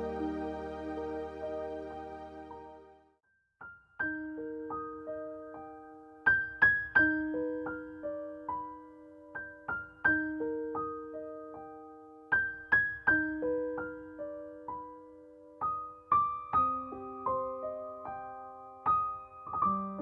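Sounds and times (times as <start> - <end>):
slow piano notes: 0.0 - 3.0.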